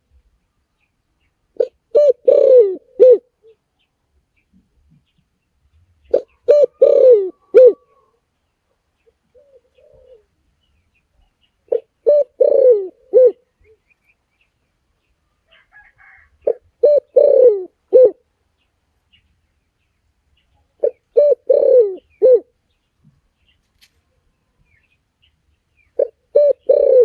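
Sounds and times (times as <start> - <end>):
dove cooing: 1.5 - 3.6, 6.1 - 8.2, 9.3 - 10.4, 11.7 - 13.8, 15.5 - 18.2, 20.8 - 22.6, 26.0 - 27.0.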